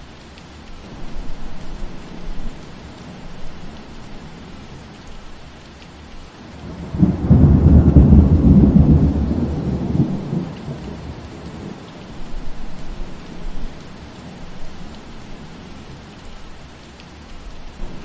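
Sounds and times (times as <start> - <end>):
steady rain: 0.0 - 18.0
thunder rumbling: 6.6 - 16.0.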